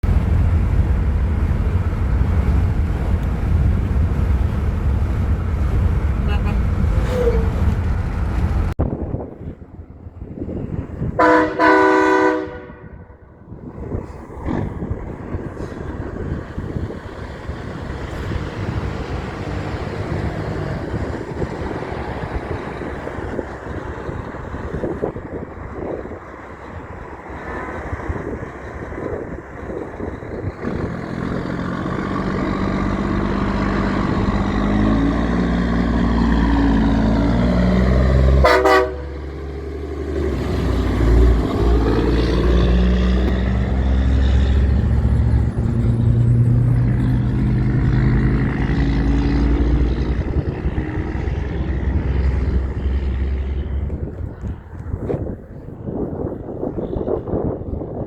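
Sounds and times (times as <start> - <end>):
heavy truck diesel engine: 0.0 - 58.0
road traffic noise: 0.0 - 58.0
truck air horn blasts: 6.2 - 7.8, 11.2 - 13.2, 38.2 - 39.4.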